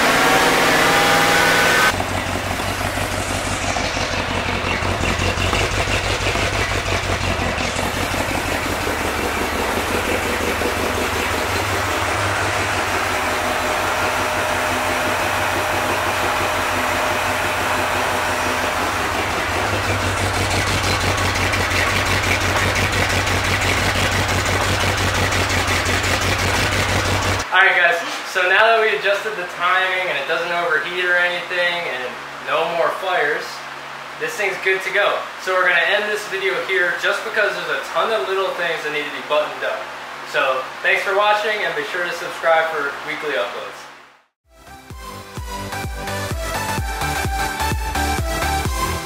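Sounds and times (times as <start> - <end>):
engine running through exhaust: 0.0 - 27.5.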